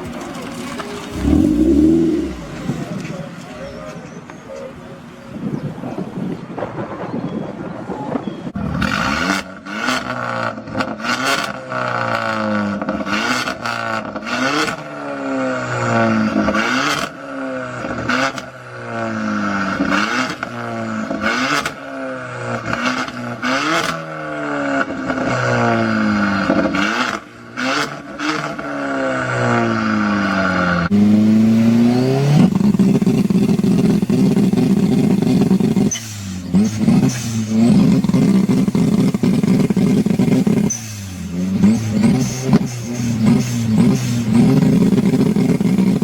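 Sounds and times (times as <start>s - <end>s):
car engine revving: 0.0s - 3.8s, 8.6s - 46.0s
exhaust pops and crackles: 32.4s - 46.0s.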